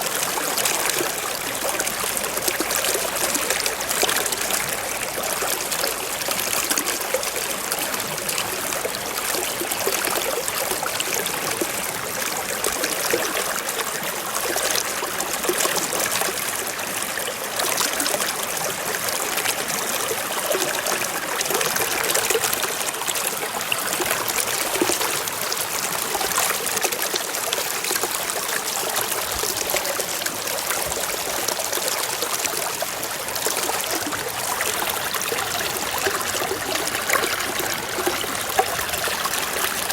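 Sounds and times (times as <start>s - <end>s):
stream trickling over rocks: 0.0s - 39.9s.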